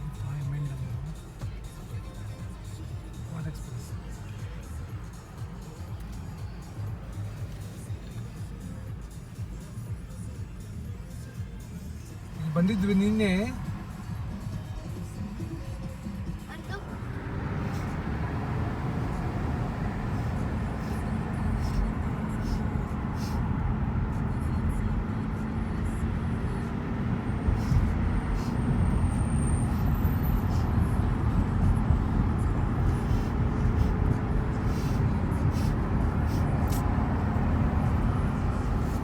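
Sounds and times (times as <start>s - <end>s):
car engine and road noise: 0.0s - 39.0s.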